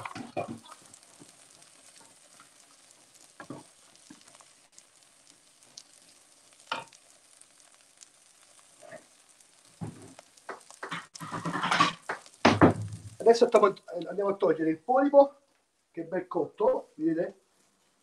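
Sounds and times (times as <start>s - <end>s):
wooden spatula stirring in pot: 0.0s - 14.0s
food sizzling: 0.0s - 18.0s.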